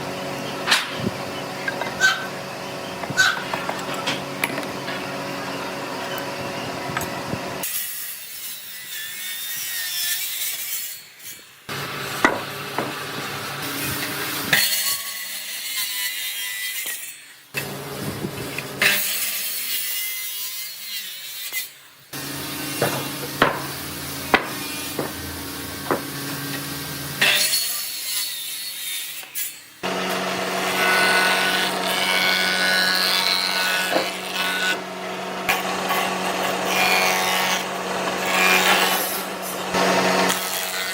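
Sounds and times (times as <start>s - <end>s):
sawing and rasping wood: 0.0s - 40.9s.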